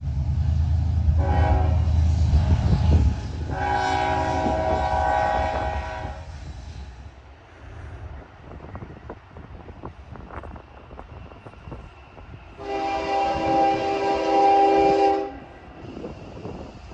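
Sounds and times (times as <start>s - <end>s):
diesel locomotive engine rumble: 0.0s - 16.9s
train air horn: 1.2s - 6.4s, 12.6s - 15.5s.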